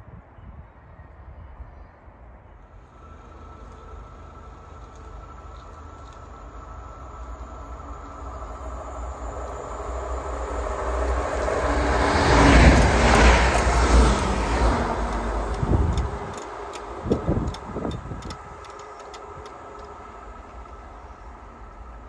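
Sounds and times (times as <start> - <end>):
train wheels roaring on rail: 2.7 - 22.0
sharp clicks: 12.8 - 20.0.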